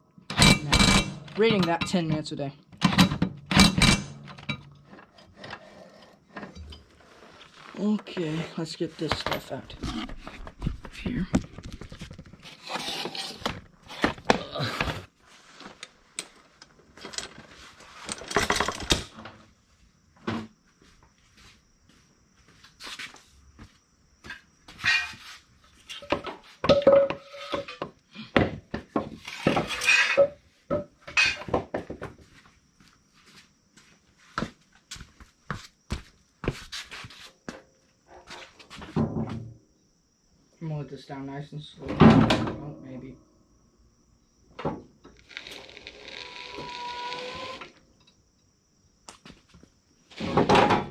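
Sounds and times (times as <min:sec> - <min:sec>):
equipment clunking and scraping: 0:00.3 - 0:10.9, 0:24.3 - 0:32.3, 0:50.1 - 0:50.9.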